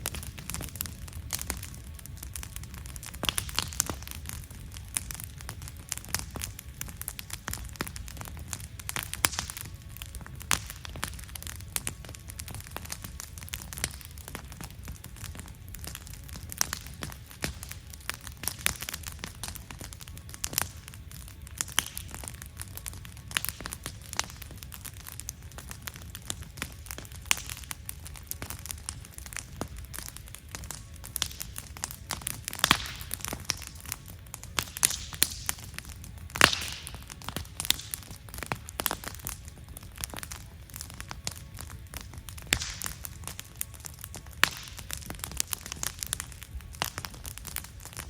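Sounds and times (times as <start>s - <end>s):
low rumble of burning: 0.0s - 48.0s
wood fire crackling and popping: 0.0s - 48.0s.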